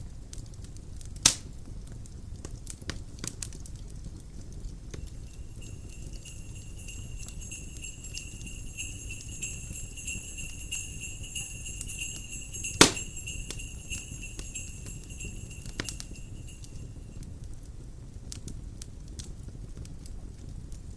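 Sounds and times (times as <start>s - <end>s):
crackling log fire: 0.3s - 17.1s
low rumble of wind: 5.0s - 17.2s
sleigh chimes jangling: 5.0s - 17.3s.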